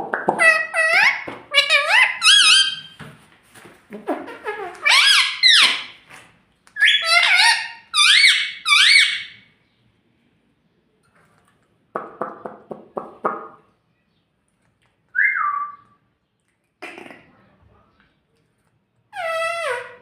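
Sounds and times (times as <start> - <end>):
parrot chattering: 0.3 - 3.0, 4.0 - 6.0, 6.8 - 9.4
parrot squawking: 0.3 - 3.0, 4.0 - 6.0, 6.8 - 9.4, 19.1 - 20.0.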